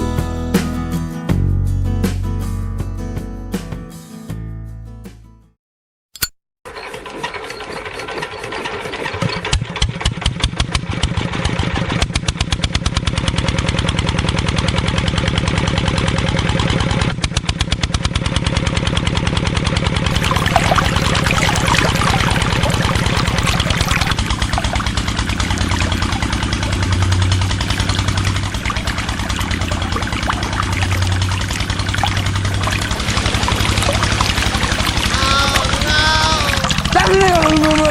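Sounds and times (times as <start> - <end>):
small engine chugging: 6.7 - 37.9
harsh rattle: 20.9 - 37.9.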